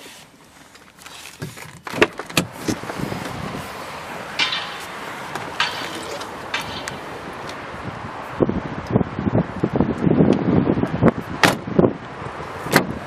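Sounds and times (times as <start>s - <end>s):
wind on microphone: 2.5s - 5.7s, 6.3s - 13.0s.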